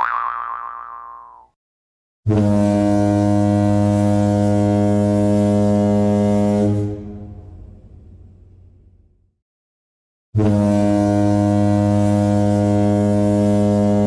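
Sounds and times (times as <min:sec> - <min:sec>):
foghorn blast: 0:02.3 - 0:07.5, 0:10.4 - 0:14.0.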